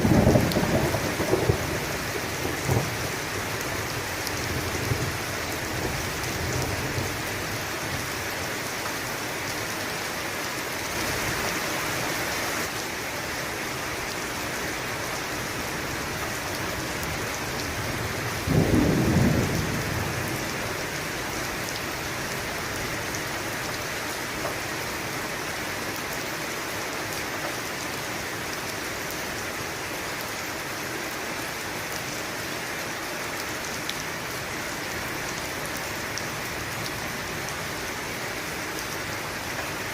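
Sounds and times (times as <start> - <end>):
low rumble of thunder: 0.0 - 7.3, 17.8 - 21.0
steady rain falling: 0.0 - 39.9.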